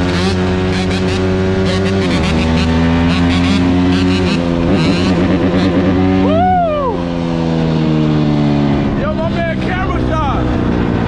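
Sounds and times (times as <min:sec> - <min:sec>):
dirt bike engines running: 0:00.0 - 0:11.0.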